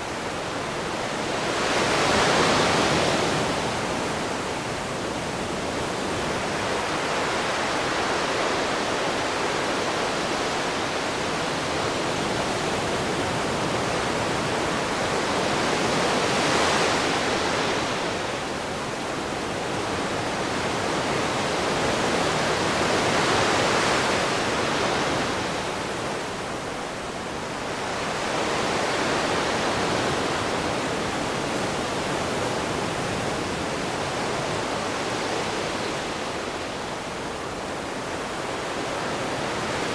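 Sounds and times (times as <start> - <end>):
ocean waves washing onto shore: 0.0 - 39.9.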